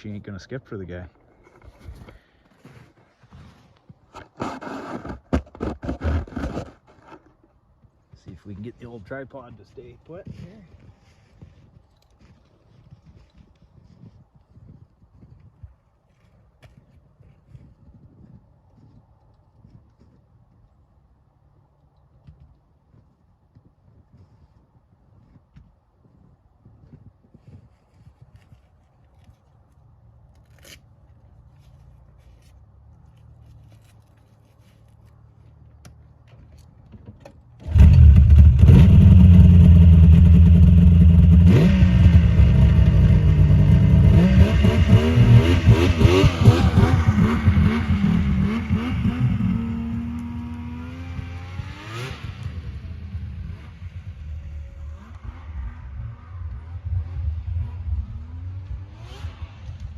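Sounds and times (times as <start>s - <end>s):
snowmobile engine: 37.6s - 59.9s.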